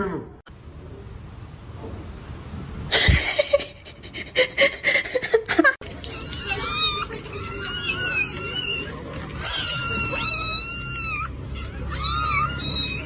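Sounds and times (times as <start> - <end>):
cat yowling: 6.1 - 13.0.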